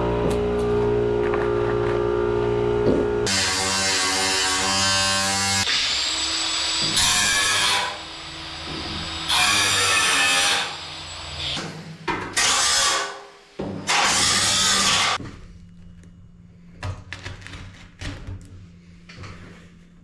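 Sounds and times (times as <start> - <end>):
power tool cutting sheet metal: 3.2 - 15.2.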